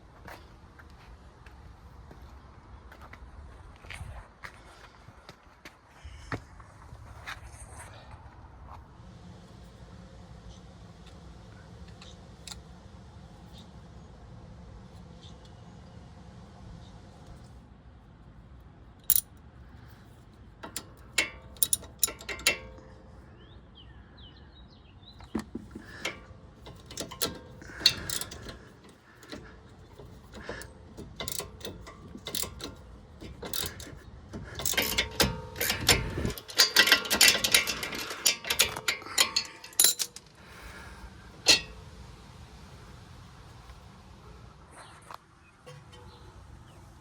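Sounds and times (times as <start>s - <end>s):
quick ratcheting clicks: 20.6s - 22.7s, 25.4s - 40.4s
metal hand tools clinking: 20.6s - 23.0s, 25.4s - 40.4s.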